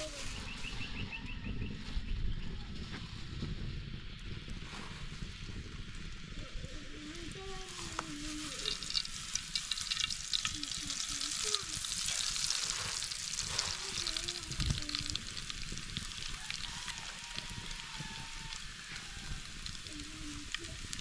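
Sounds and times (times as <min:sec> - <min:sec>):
food sizzling in hot oil: 0:07.3 - 0:21.0.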